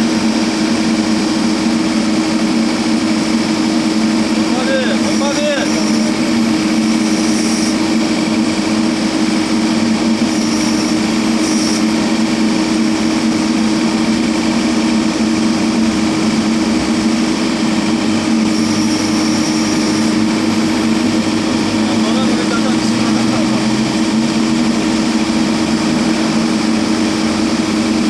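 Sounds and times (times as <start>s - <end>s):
diesel engine droning: 0.0s - 28.0s.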